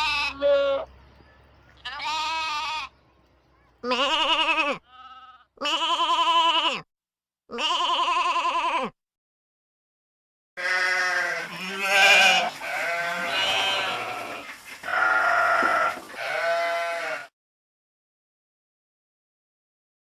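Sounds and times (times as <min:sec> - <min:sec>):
sheep bleating: 0:00.0 - 0:00.9, 0:01.8 - 0:03.0, 0:03.8 - 0:06.9, 0:07.5 - 0:09.0, 0:10.6 - 0:17.3.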